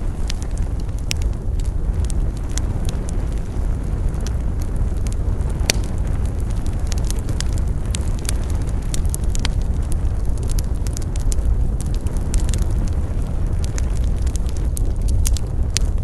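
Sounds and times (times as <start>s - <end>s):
burning wood crackling and popping: 0.0s - 16.0s
low rumble of flame: 0.0s - 16.0s.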